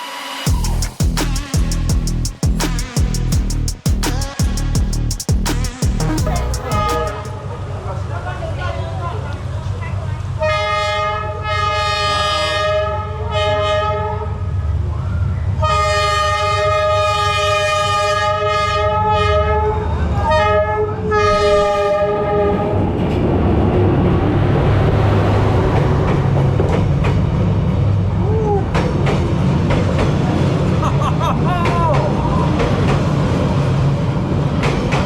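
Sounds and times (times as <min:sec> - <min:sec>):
train horn blasts: 0:10.4 - 0:14.4, 0:15.6 - 0:22.8
train rumbling along rails: 0:19.9 - 0:35.0.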